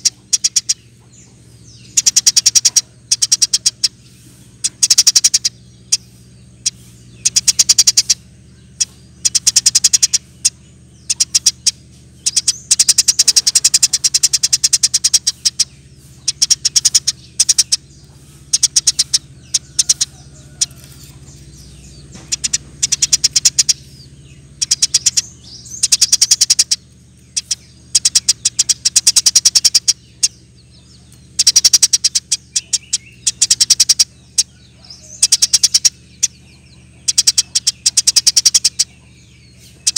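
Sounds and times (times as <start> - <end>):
low steady hum: 0.0 - 39.9
sparrow chirping in bursts: 0.0 - 39.9.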